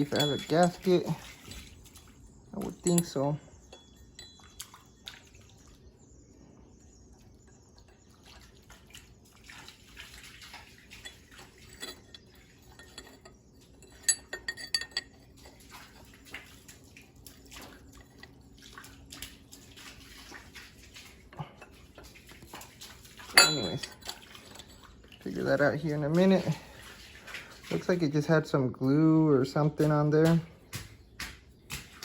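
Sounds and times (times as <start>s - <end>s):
metal engine parts clinking: 0.0s - 1.9s, 2.6s - 4.6s, 11.0s - 15.6s, 23.3s - 25.0s.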